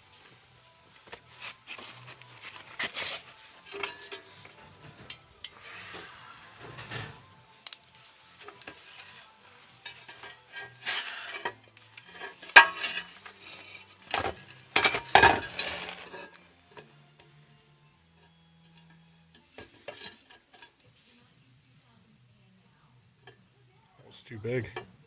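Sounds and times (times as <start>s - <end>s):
scrap steel clinking and scraping: 1.2s - 16.9s, 18.7s - 20.8s.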